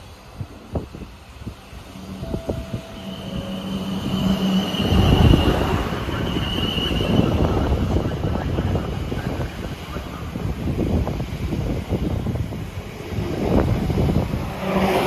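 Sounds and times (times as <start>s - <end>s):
train rumbling past: 0.0s - 15.0s
high-pitched whine: 1.9s - 8.8s.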